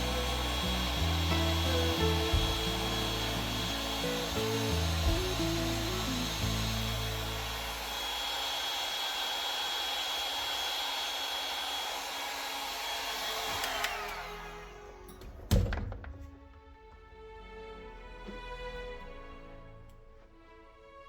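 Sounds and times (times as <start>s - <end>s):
hot-air blower whining: 0.0s - 15.5s.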